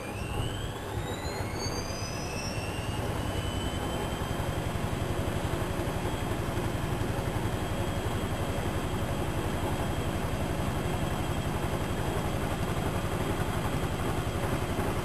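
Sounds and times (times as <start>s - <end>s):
washing machine drum spinning up: 0.0s - 15.0s.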